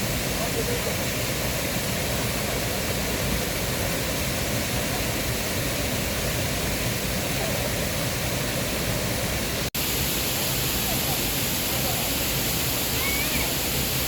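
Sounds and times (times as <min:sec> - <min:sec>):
stream water running over rocks: 0:00.0 - 0:14.0.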